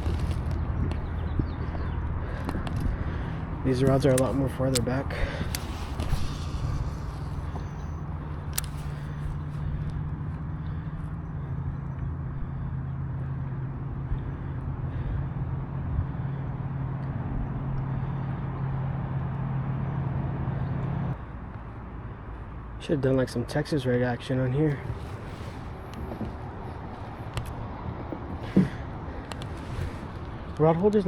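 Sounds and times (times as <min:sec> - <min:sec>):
kayak pedal drive humming: 0:00.0 - 0:18.8, 0:24.8 - 0:30.6.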